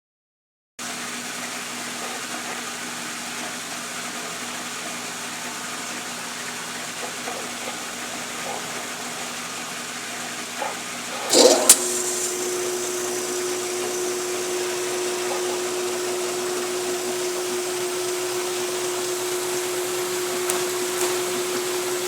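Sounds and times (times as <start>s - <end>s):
washing machine hum: 0.8s - 22.0s.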